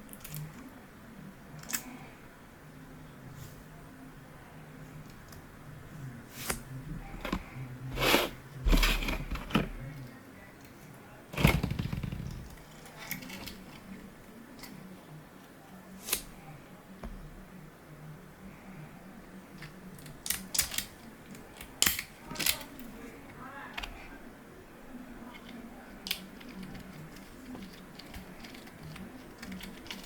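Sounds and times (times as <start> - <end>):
plastic parts rubbing: 7.0 - 9.9, 11.4 - 14.0, 25.4 - 30.0
plastic parts clicking and knocking: 7.2 - 9.9, 11.4 - 14.0, 19.6 - 22.9, 25.4 - 30.0.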